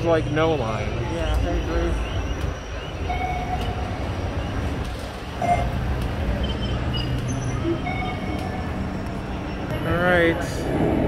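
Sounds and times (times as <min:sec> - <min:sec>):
steady low rumble: 0:10.4 - 0:11.0.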